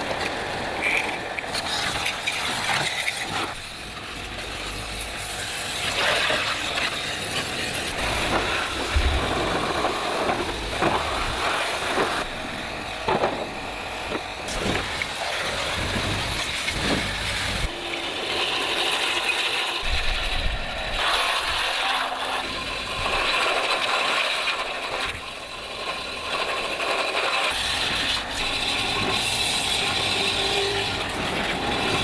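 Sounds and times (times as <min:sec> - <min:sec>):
continuous background noise: 0:00.0 - 0:24.0.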